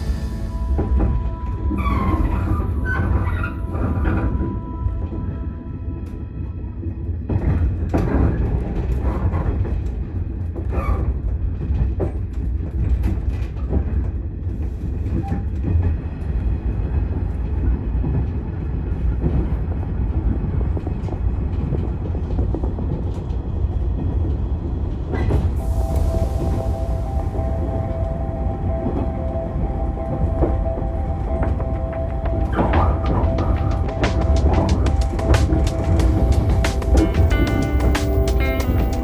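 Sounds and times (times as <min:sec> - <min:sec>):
two-note hum: 0:00.0 - 0:07.3, 0:25.6 - 0:39.0
train rumbling on track: 0:00.0 - 0:39.0
wheels clicking and knocking: 0:31.4 - 0:39.0.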